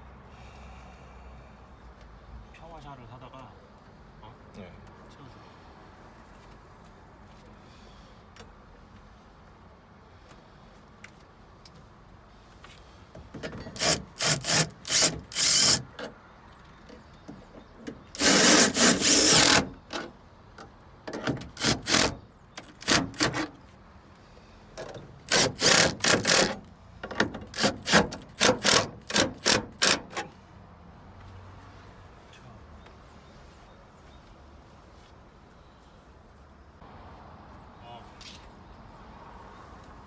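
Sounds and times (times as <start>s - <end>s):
hand tool rasping strokes: 13.7s - 15.9s, 18.1s - 19.8s, 21.5s - 23.5s, 25.3s - 26.6s, 27.5s - 30.2s.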